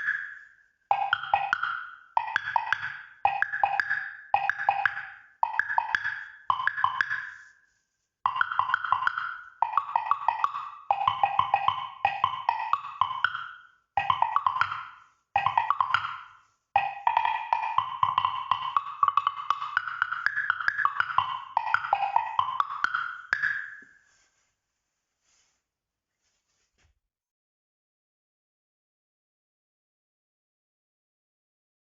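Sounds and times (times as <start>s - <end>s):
wood blocks struck in fast runs: 0.0s - 7.5s, 8.3s - 23.9s.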